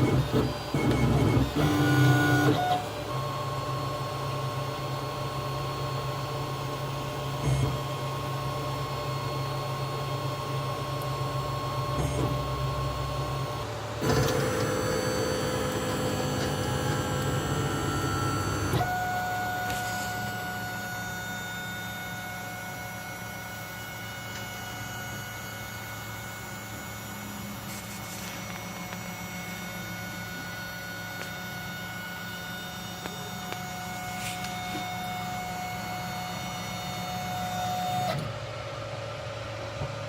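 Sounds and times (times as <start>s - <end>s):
stepper motors whining: 0.0s - 3.6s, 11.2s - 38.3s.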